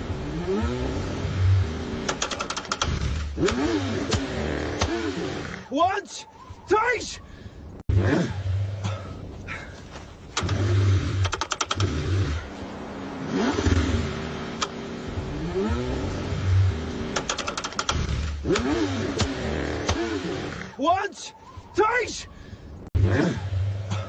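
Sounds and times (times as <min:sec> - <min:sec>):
car engine cranking: 0:00.0 - 0:05.7, 0:10.2 - 0:20.8
rapid clicking: 0:02.0 - 0:04.2, 0:10.4 - 0:12.0, 0:17.1 - 0:20.0.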